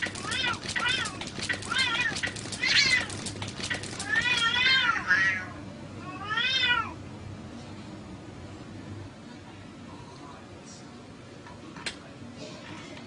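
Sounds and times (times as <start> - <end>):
cat meowing: 0.0 - 3.2, 3.8 - 7.0.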